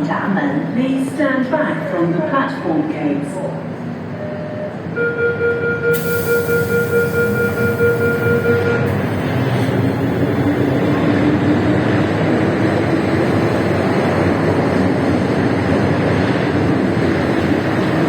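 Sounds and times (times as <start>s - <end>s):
train motor whine: 5.8s - 12.0s
train wheels rumbling: 6.0s - 18.0s.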